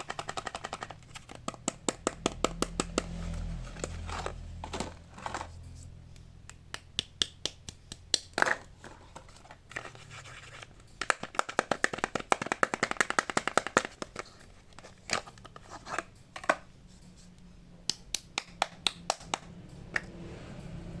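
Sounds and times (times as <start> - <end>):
soap wrappers clicking: 0.0 - 3.0, 7.2 - 16.6
hands scratching soap bars: 0.0 - 4.0.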